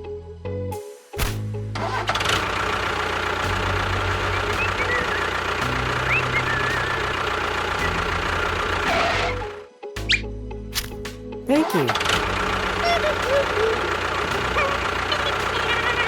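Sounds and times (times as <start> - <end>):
small vehicle engine running: 1.5 - 9.7, 11.9 - 16.0.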